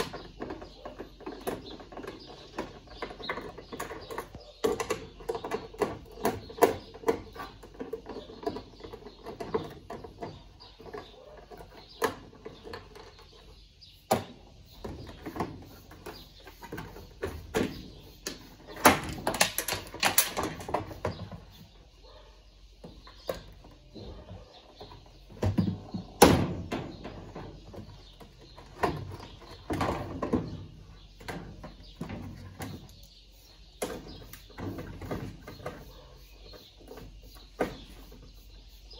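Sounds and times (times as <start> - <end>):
hand tools clicking and scraping: 0.0 - 22.2.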